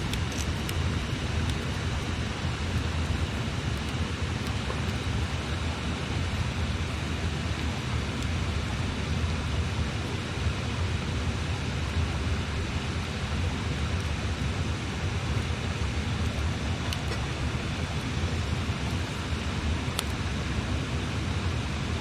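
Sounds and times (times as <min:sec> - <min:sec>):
campfire wood popping: 0:00.0 - 0:08.7, 0:13.0 - 0:20.6.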